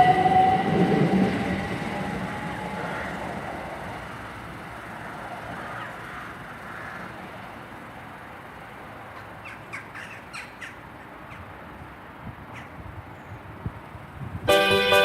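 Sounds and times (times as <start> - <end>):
train rumble: 0.0 - 15.0
crow cawing: 9.2 - 10.8.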